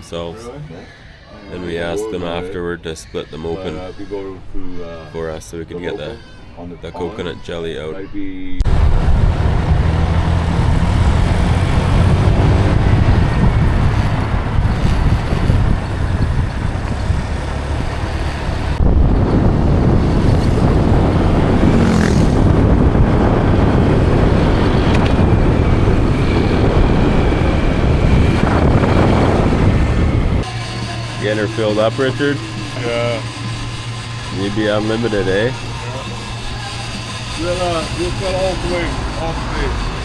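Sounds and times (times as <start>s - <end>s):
motor scooter engine: 8.6s - 39.9s
road rumble: 8.6s - 40.0s.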